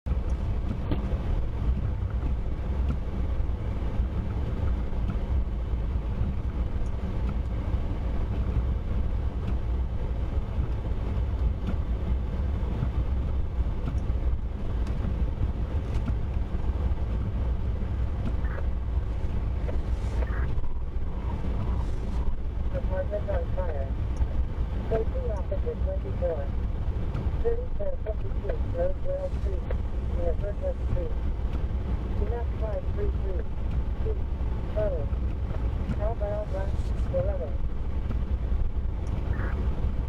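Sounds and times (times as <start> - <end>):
vehicle driving rumble: 0.1 - 40.0
faint ticks: 13.8 - 15.2.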